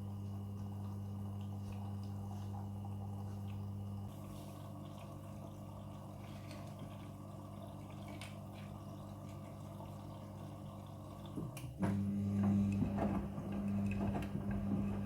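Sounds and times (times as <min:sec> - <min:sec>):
washing machine humming: 0:00.0 - 0:15.0
water trickling and dripping: 0:00.4 - 0:11.6.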